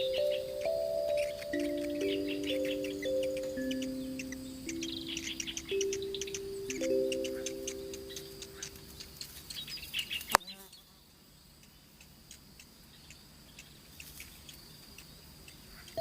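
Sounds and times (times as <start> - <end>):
high bird chirps: 0.0 - 10.8
high insect whine: 0.0 - 10.8.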